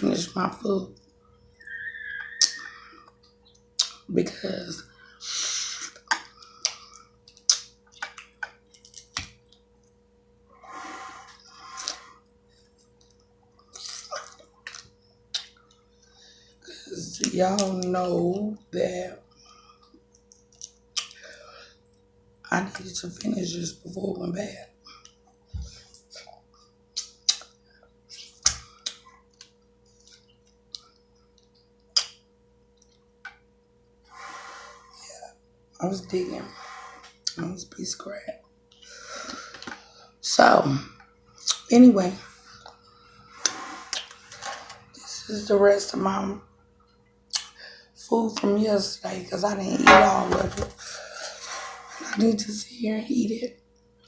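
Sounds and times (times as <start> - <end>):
crab shells cracking: 6.1 - 9.7.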